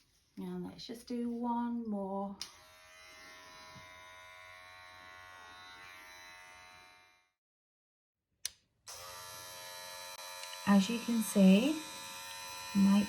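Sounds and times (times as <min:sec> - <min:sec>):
cordless trimmer humming: 0:08.9 - 0:13.0
trimmer switch click: 0:10.4 - 0:10.6.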